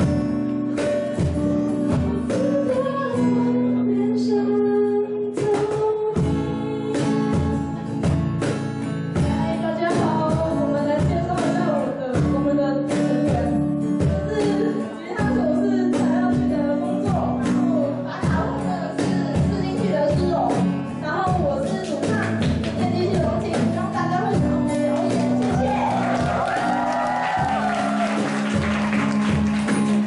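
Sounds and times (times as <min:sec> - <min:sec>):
drum kit beat: 0:00.0 - 0:03.2, 0:05.4 - 0:30.0
guitar chords: 0:00.0 - 0:30.0
person singing: 0:01.3 - 0:08.0, 0:09.2 - 0:20.0.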